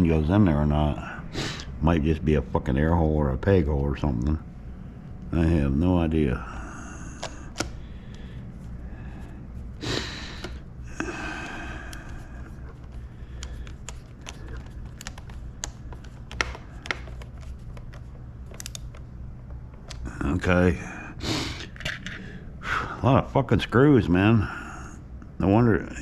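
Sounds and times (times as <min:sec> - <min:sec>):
steady low hum: 0:00.0 - 0:26.0
breathy exhalations: 0:06.4 - 0:14.8, 0:20.8 - 0:23.1
plastic parts clicking and tapping: 0:12.7 - 0:19.0.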